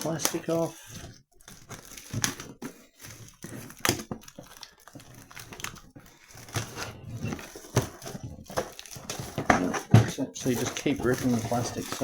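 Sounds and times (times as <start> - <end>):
plastic shrink-wrap tearing: 0.0 - 12.0.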